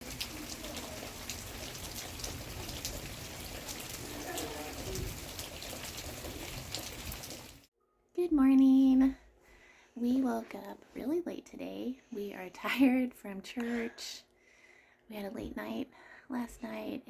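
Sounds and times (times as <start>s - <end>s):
steady rain falling: 0.0s - 7.7s.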